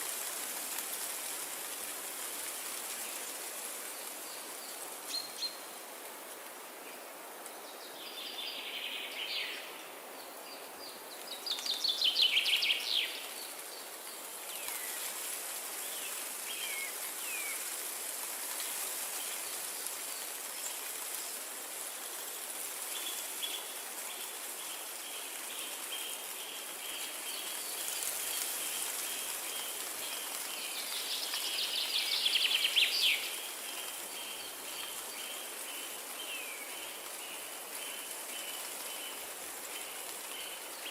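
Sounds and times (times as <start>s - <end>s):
wind through trees: 0.0s - 40.9s
songbirds singing: 7.7s - 15.1s, 22.9s - 40.9s.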